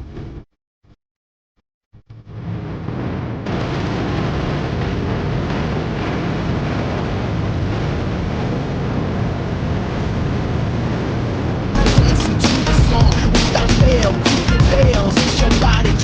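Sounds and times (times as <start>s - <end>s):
wind rushing: 2.3s - 16.0s
road traffic: 11.7s - 15.5s.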